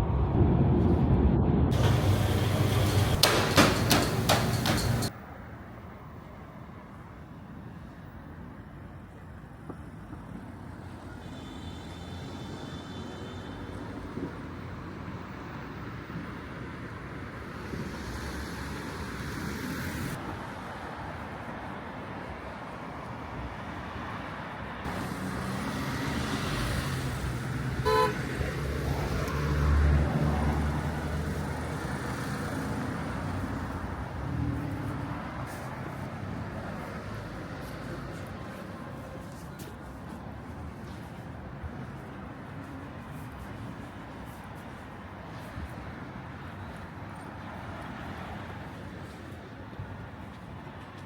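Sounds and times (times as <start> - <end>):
large vehicle rumbling by: 0.0 - 5.1
passing vehicles and tyre noise: 0.0 - 51.0
car horn toot: 27.8 - 28.3.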